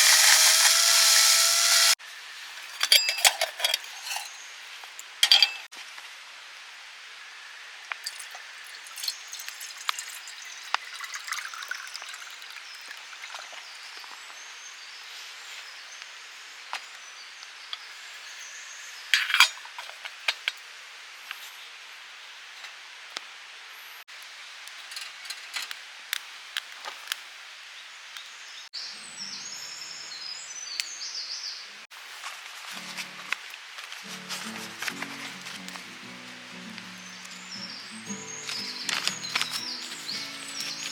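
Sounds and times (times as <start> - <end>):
cookware clatter: 2.6 - 4.4, 5.2 - 5.7, 19.2 - 19.6
cookware clinking: 2.6 - 4.4, 5.2 - 5.7, 19.2 - 19.6.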